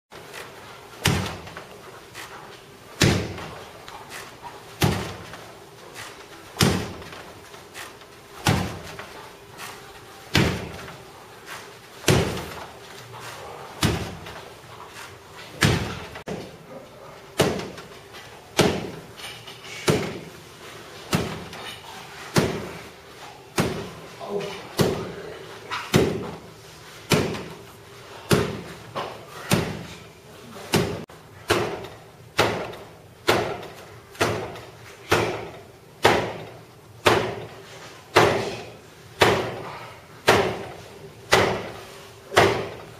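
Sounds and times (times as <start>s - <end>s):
karate strikes on target: 1.0s - 1.6s, 3.0s - 3.5s, 4.8s - 5.4s, 6.6s - 7.2s, 8.4s - 9.0s, 10.3s - 10.9s, 12.0s - 12.6s, 13.8s - 14.4s, 15.6s - 16.5s, 17.4s - 17.8s, 30.7s - 37.5s, 38.2s - 38.6s, 39.2s - 39.6s, 42.4s - 42.8s.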